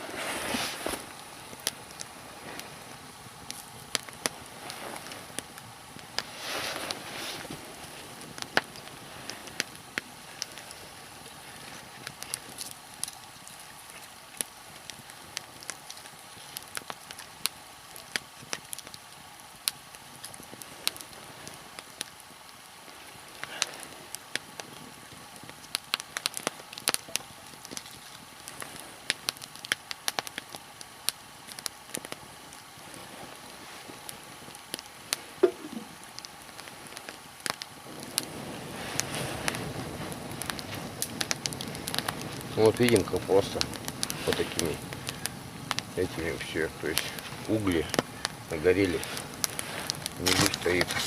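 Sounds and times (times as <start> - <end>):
log fire crackling and popping: 0.0 - 51.0.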